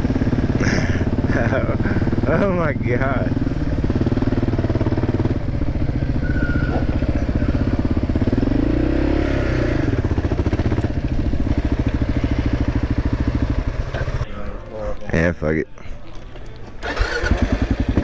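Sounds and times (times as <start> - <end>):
motorcycle engine running: 0.0 - 14.3, 16.2 - 18.0.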